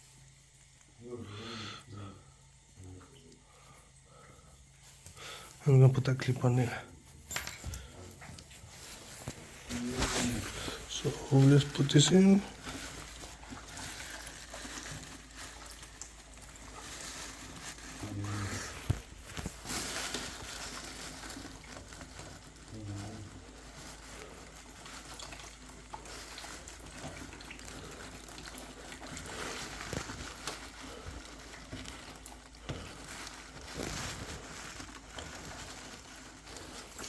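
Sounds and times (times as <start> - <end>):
faint hiss: 0.0 - 21.4.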